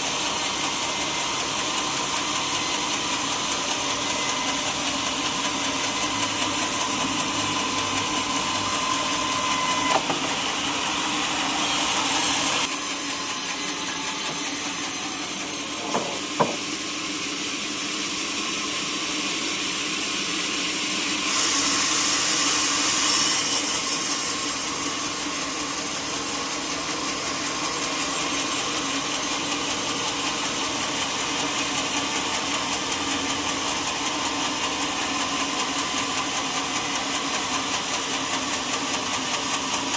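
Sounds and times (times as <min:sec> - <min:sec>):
sawmill machinery running: 0:00.0 - 0:39.9
sharp knock: 0:15.8 - 0:16.6.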